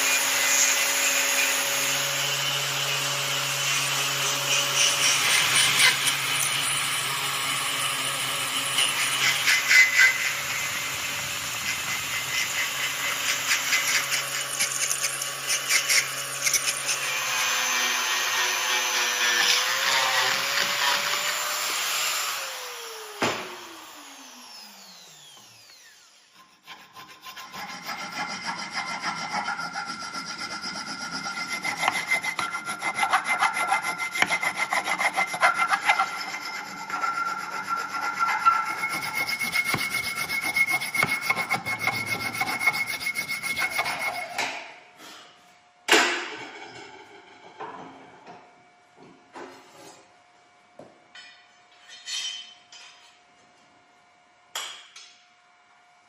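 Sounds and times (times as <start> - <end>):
grinder scraping steel: 0.0 - 21.8, 26.2 - 44.6
motor winding down: 20.4 - 26.4.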